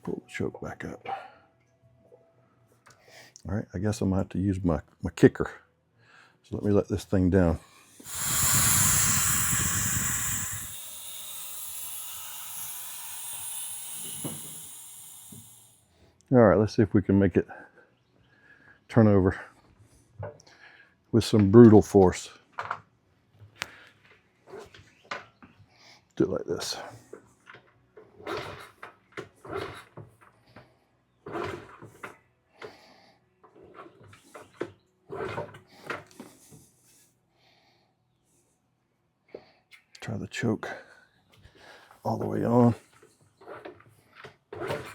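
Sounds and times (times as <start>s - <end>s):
air hissing from lift release: 7.6s - 15.8s.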